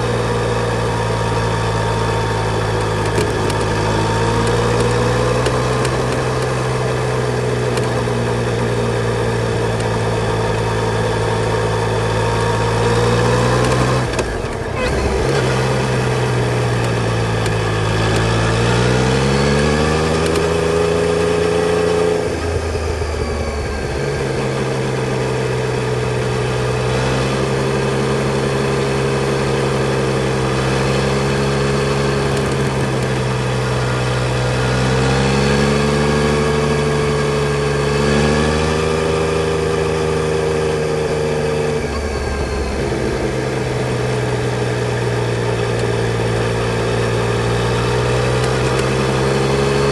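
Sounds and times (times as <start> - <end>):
motorcycle engine pulling under throttle: 0.0 - 49.9.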